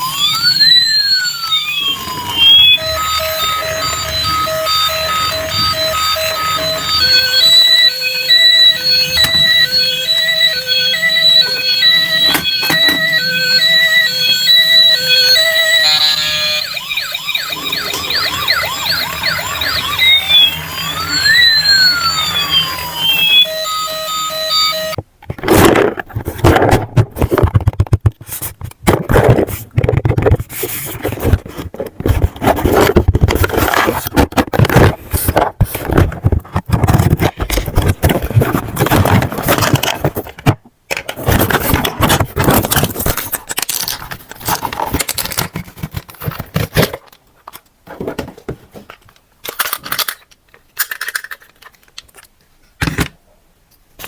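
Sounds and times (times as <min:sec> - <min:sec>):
plastic and cardboard crackling: 0:25.0 - 0:52.4.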